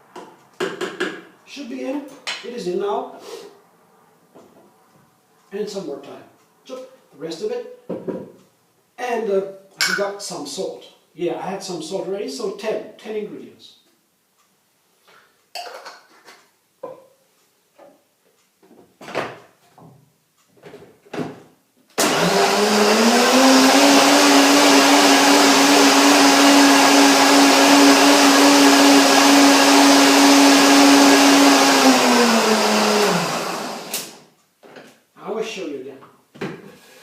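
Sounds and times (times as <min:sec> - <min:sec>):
blender running at high speed: 0:22.0 - 0:34.2.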